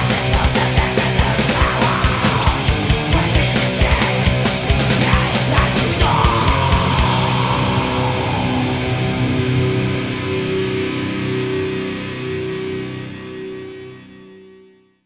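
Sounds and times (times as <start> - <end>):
distorted punk metal band: 0.0 - 14.2
guitars ringing chord: 4.3 - 14.0.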